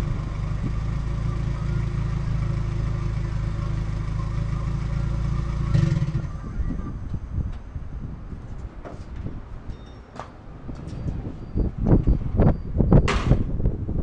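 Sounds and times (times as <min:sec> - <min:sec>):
car engine idling: 0:00.0 - 0:08.3
engine throttle revving: 0:04.6 - 0:06.6.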